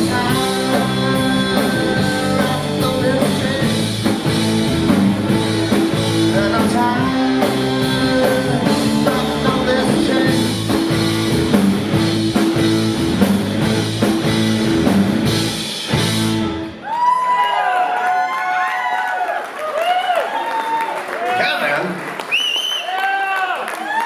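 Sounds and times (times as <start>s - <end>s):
rock band playing live: 0.0s - 16.9s.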